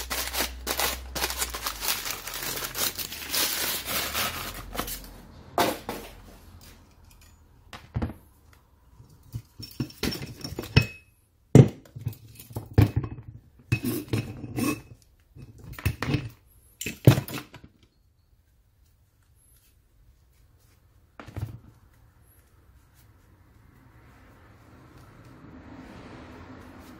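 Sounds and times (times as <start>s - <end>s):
metal tools clinking: 6.6s - 7.6s, 9.2s - 11.1s.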